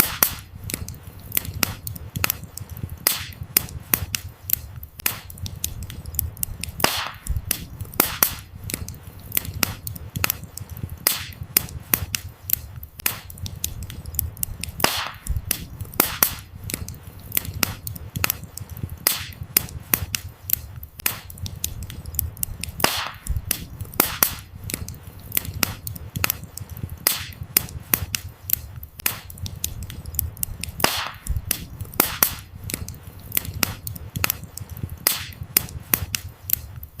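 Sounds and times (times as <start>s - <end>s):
campfire crackling and popping: 0.0s - 37.0s
low rumble of flames: 0.0s - 37.0s.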